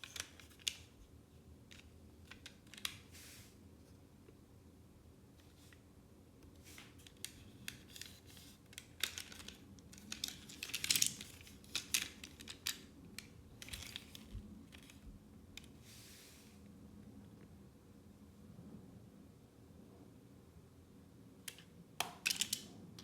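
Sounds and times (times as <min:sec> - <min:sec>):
plastic parts clicking: 0:00.0 - 0:01.0, 0:01.7 - 0:03.1, 0:06.8 - 0:15.0, 0:21.5 - 0:23.0.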